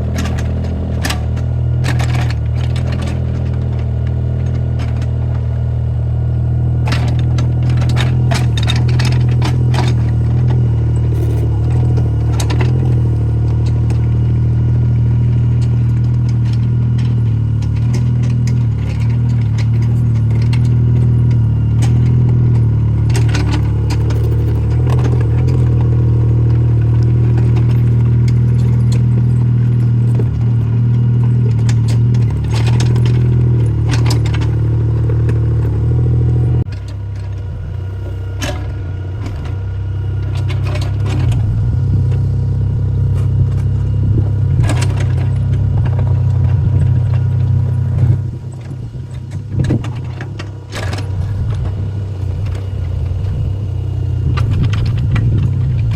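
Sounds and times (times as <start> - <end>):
excavator engine running: 0.0 - 55.9
metal clanks and clatter: 0.0 - 55.9.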